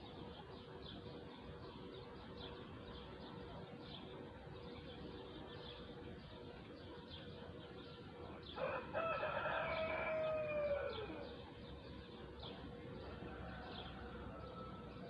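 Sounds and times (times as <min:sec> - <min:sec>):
small birds chirping: 0:00.0 - 0:15.0
rooster crowing: 0:08.6 - 0:11.4, 0:13.1 - 0:15.0.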